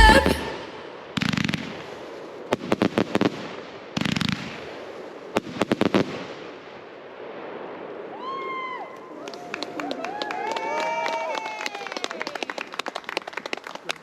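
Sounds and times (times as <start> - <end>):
fireworks crackling: 0.0 - 8.4
fireworks bangs: 0.0 - 8.6.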